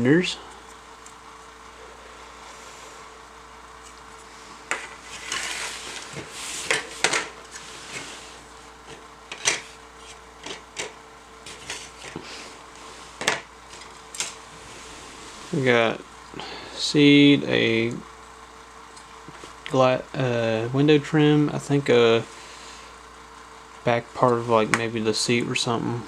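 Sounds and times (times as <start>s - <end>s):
plastic parts rubbing and rustling: 3.8s - 15.0s.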